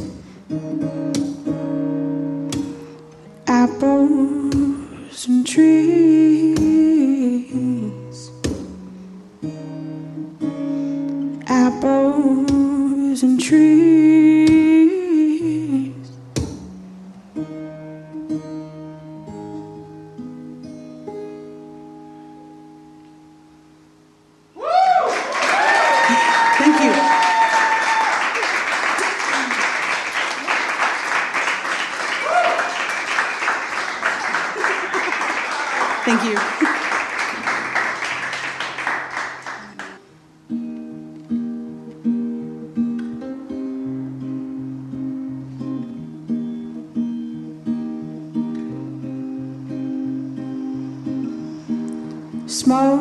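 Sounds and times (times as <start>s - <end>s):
acoustic guitar picking: 0.0s - 24.3s, 37.3s - 53.0s
audience applause: 24.8s - 40.0s.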